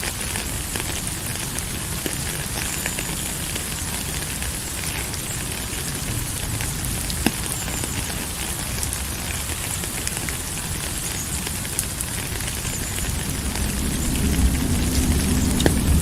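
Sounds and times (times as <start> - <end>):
steady rain falling: 0.0 - 16.0
low rumble: 12.4 - 16.0.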